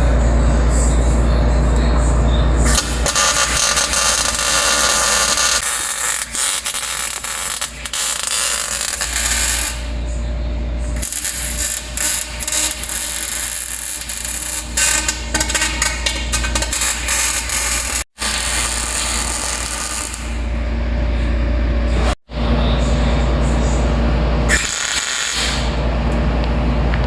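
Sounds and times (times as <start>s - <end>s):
welder crackling and hissing: 2.7s - 9.9s, 11.0s - 20.3s, 24.5s - 25.8s.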